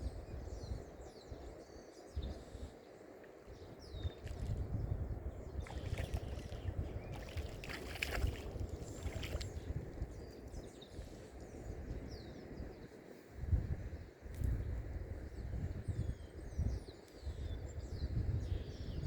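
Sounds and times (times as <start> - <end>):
wind rumbling on microphone: 0.0 - 19.0
water lapping: 5.6 - 9.8.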